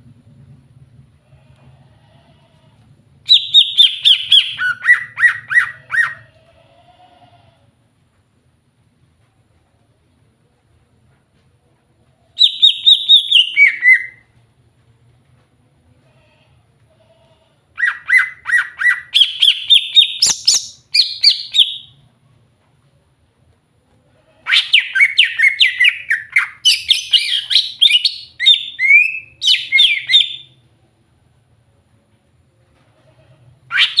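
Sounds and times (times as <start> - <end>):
bird singing chirps and whistles: 3.3 - 6.2, 12.4 - 14.2, 17.8 - 21.9, 24.5 - 30.5, 33.7 - 34.0.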